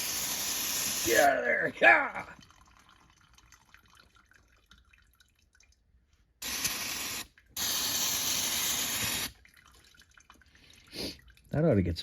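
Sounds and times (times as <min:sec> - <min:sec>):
aerosol can spraying: 0:06.4 - 0:09.3.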